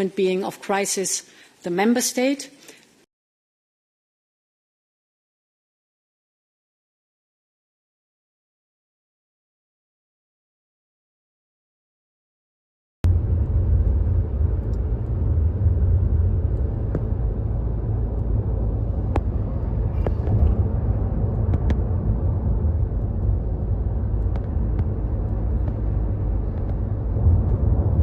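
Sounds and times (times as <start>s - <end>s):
low rumble of fire: 13.0s - 28.0s
fire crackling: 13.1s - 28.0s.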